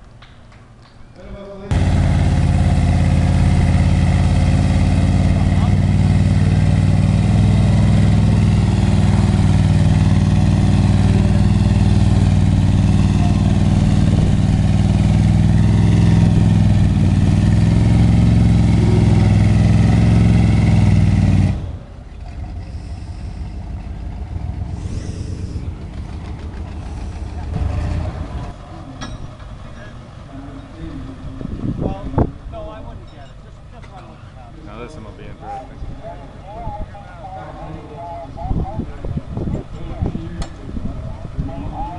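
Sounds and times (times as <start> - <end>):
diesel truck engine revving: 1.7 - 32.5.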